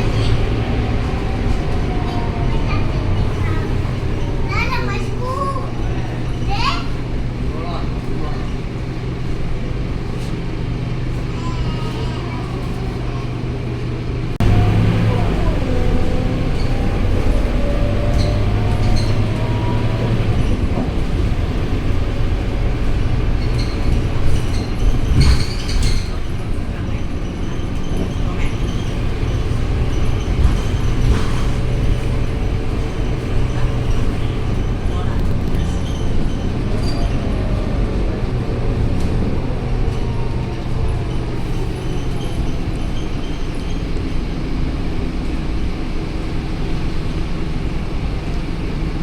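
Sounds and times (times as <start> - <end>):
rising engine whine: 0.0 - 6.4, 14.3 - 25.0
bus diesel engine running: 0.0 - 49.0.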